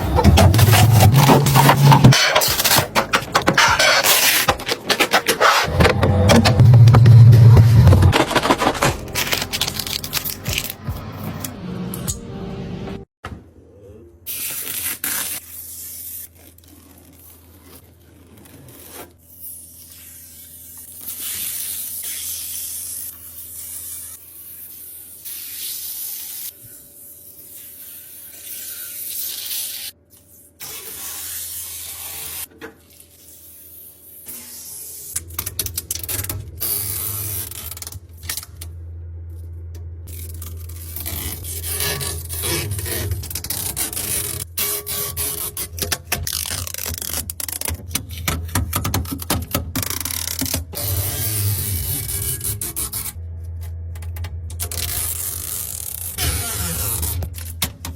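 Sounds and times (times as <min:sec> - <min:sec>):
packaging rubbing and scraping: 0:00.0 - 0:11.5, 0:40.1 - 0:53.2.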